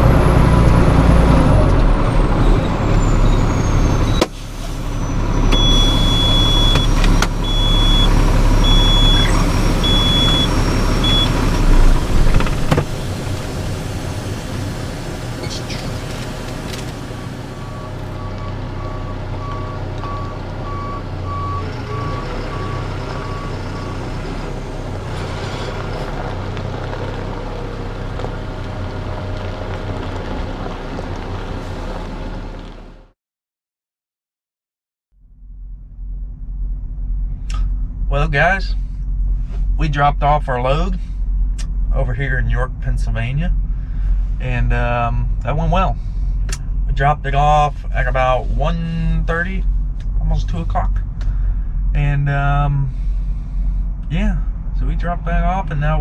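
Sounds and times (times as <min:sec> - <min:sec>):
truck engine rumbling: 0:00.0 - 0:33.1, 0:35.2 - 0:56.0
electronic warning beeps: 0:05.5 - 0:11.4.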